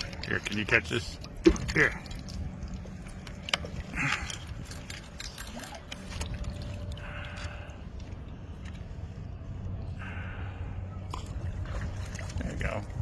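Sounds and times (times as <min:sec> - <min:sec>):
fishing gear knocks and clicks: 0:00.0 - 0:08.9
water splashing and trickling: 0:00.0 - 0:13.0.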